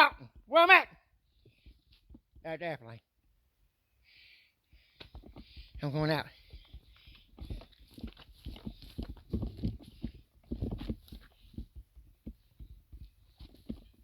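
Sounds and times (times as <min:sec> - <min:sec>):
footsteps on rocky trail: 0:04.8 - 0:14.0.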